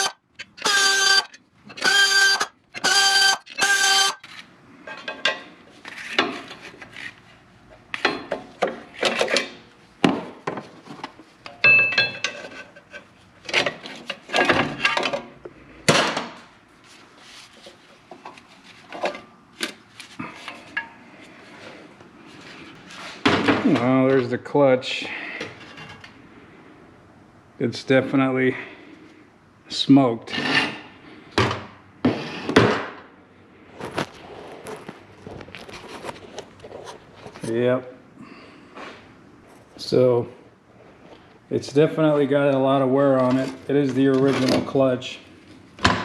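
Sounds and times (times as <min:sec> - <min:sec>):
short squeals: 0:00.0 - 0:04.3
metal clanks and rattles of tools: 0:08.0 - 0:09.6, 0:11.5 - 0:15.3.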